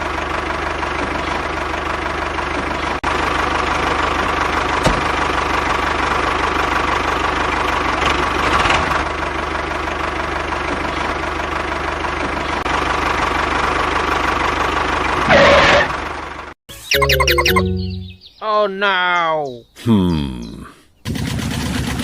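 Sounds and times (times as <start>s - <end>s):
small engine knocking clatter: 21.0s - 22.0s.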